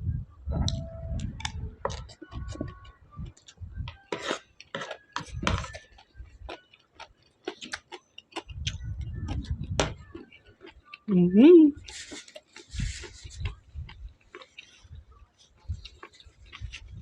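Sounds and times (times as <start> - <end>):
person crunching and chewing: 3.3 - 11.1, 11.8 - 17.0
mouth clicks and smacks: 4.9 - 11.0.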